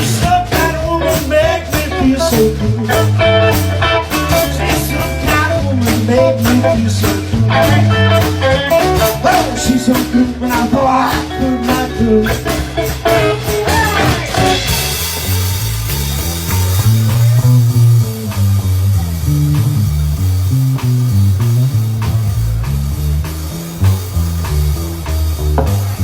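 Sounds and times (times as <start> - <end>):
bass line: 0.0 - 26.0
drum kit beat: 0.0 - 26.0
guitar: 0.0 - 26.0.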